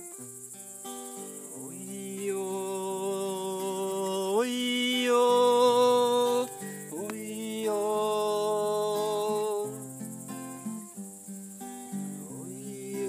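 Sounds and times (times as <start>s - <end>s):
strummed acoustic guitar: 0.0s - 13.0s
person singing wordless notes: 1.6s - 9.8s, 12.2s - 13.0s.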